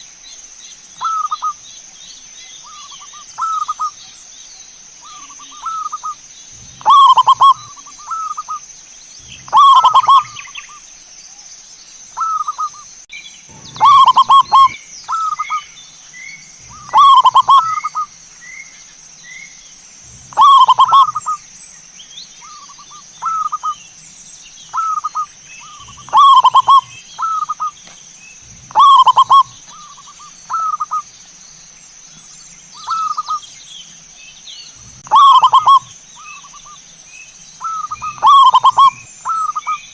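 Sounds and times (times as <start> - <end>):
dove cooing: 5.0 - 8.6, 9.3 - 10.5, 13.5 - 15.6, 16.6 - 18.1, 20.2 - 21.4, 22.4 - 23.8, 24.7 - 27.8, 28.5 - 31.0, 34.8 - 35.9, 37.6 - 39.8.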